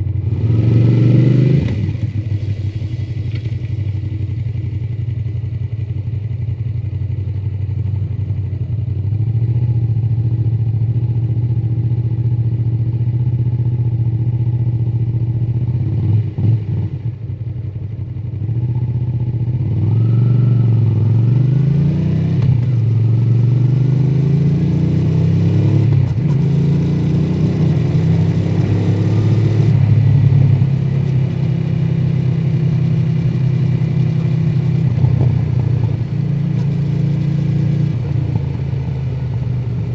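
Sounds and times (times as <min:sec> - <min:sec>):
motorcycle engine revving: 0:00.0 - 0:05.6, 0:18.2 - 0:39.9.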